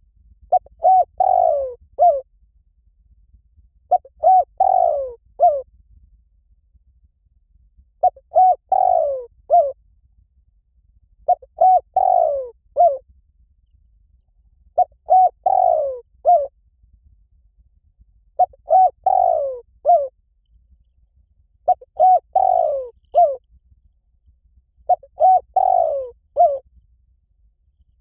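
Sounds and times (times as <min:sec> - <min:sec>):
dove cooing: 0:00.5 - 0:02.2, 0:03.9 - 0:05.6, 0:08.0 - 0:09.8, 0:11.3 - 0:13.0, 0:14.8 - 0:16.5, 0:18.4 - 0:20.1, 0:21.7 - 0:23.4, 0:24.9 - 0:26.6.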